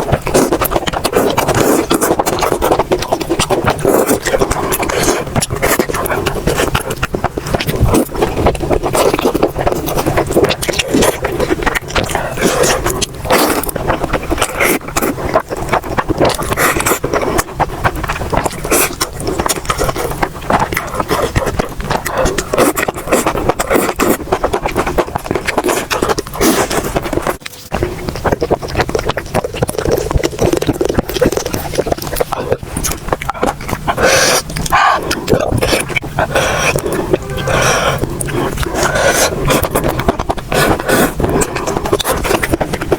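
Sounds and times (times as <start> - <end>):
food being chewed: 0.0 - 42.9.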